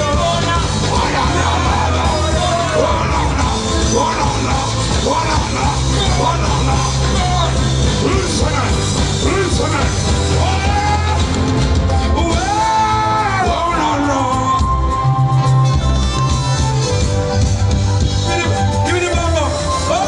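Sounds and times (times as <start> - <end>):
person shouting and singing: 0.0 - 15.1
loud music with heavy bass: 0.0 - 20.0.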